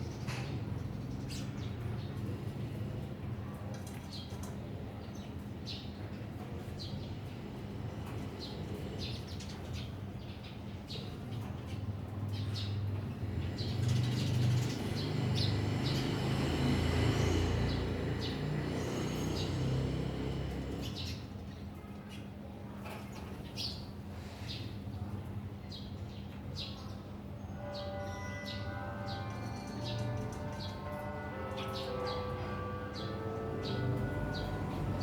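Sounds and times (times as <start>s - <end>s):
small birds chirping: 8.1s - 27.1s.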